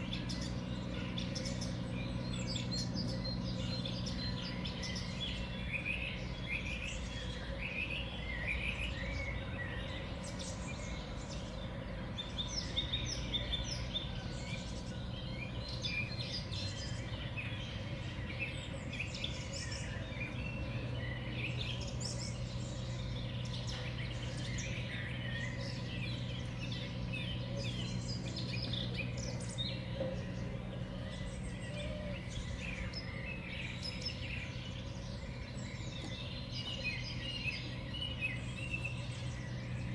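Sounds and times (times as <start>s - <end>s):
small birds chirping: 12.2s - 39.9s
steady low hum: 13.8s - 39.9s.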